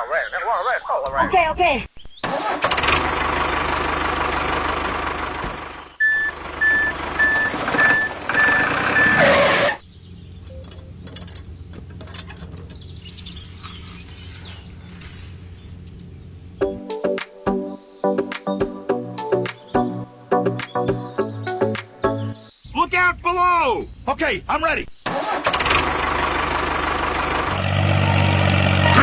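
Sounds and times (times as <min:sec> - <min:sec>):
heavy vehicle engine: 0:02.6 - 0:16.7, 0:25.2 - 0:29.0
reversing alarm beeping: 0:06.0 - 0:09.4, 0:10.4 - 0:10.9.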